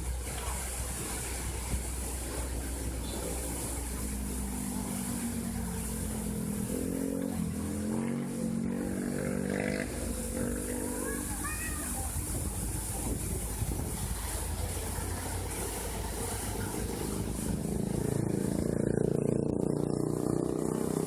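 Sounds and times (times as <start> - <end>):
vehicle engine droning: 0.0 - 21.0
waterfall rushing: 9.2 - 18.1
wind rumble on microphone: 9.8 - 15.4.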